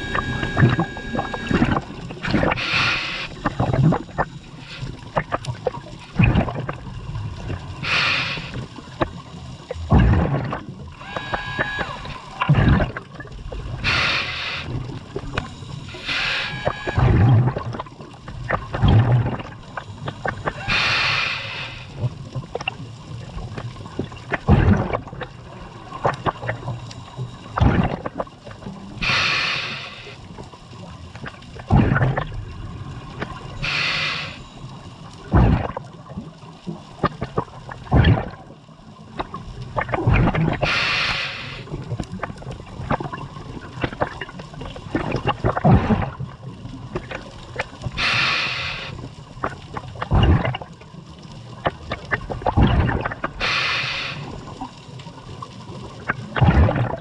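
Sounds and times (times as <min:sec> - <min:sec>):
exhaled air bubbling: 0:00.0 - 0:57.0
regulator inhalation hiss: 0:02.4 - 0:03.5, 0:07.8 - 0:08.7, 0:11.0 - 0:12.4, 0:13.8 - 0:14.9, 0:15.8 - 0:17.1, 0:20.5 - 0:22.0, 0:29.0 - 0:30.2, 0:33.6 - 0:34.5, 0:40.6 - 0:41.7, 0:48.0 - 0:49.1, 0:53.4 - 0:54.5.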